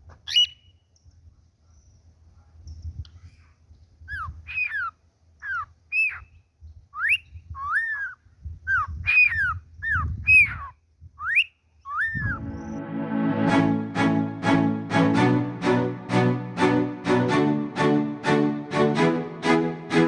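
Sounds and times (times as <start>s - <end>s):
cockatiel whistling: 0.3s - 0.7s, 7.0s - 12.4s.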